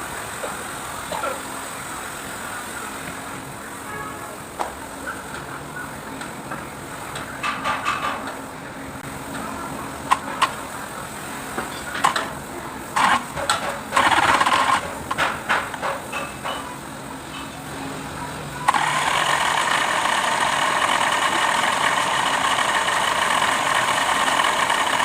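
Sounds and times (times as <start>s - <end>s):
diesel engine idling: 18.7s - 25.0s.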